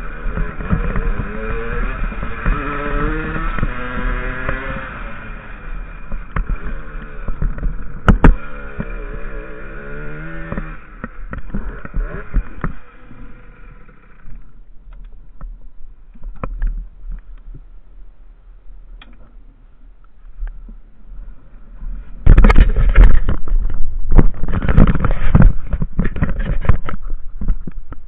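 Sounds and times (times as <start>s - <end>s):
motorcycle engine running: 0.0s - 14.7s
scattered clicks and knocks: 6.1s - 9.2s, 10.4s - 12.9s, 22.2s - 28.0s.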